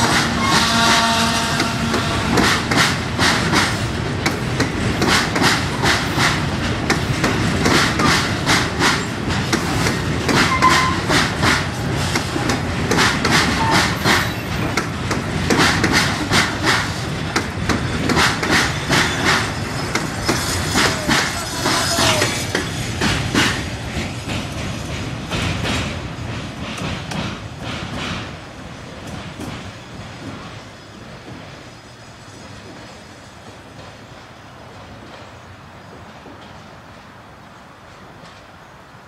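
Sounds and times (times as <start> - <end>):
train wheels clacking over rail joints: 0.0 - 36.8
wheel squeal: 10.5 - 11.1.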